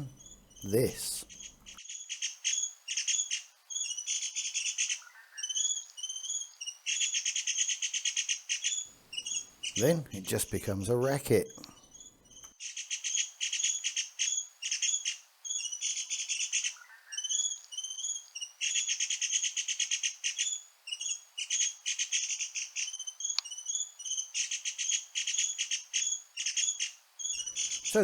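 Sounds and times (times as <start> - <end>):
birds' rattling trills: 0.0 - 28.0
down-slurred bird chirps: 0.0 - 28.0.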